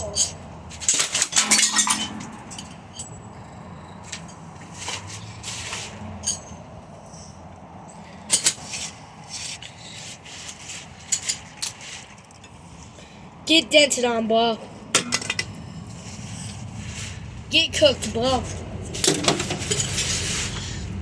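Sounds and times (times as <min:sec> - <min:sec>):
metal part being battered: 0:00.1 - 0:03.2.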